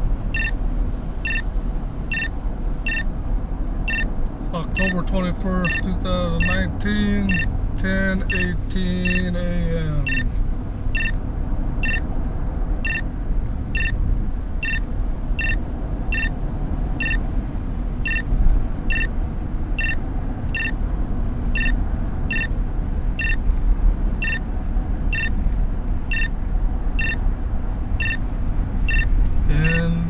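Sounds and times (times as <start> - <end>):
car driving rumble: 0.0 - 30.0
short electronic beeps: 0.3 - 0.6, 1.2 - 1.5, 2.1 - 3.1, 3.9 - 4.1, 4.8 - 5.1, 5.7 - 6.6, 7.2 - 7.5, 8.2 - 9.4, 10.0 - 10.3, 10.9 - 11.2, 11.8 - 12.1, 12.8 - 13.1, 13.7 - 14.0, 14.6 - 16.4, 17.0 - 17.2, 18.0 - 18.3, 18.9 - 19.1, 19.8 - 20.8, 21.5 - 22.6, 23.2 - 23.4, 24.2 - 24.4, 25.1 - 25.4, 26.1 - 26.4, 27.0 - 27.2, 28.0 - 28.2, 28.8 - 30.0.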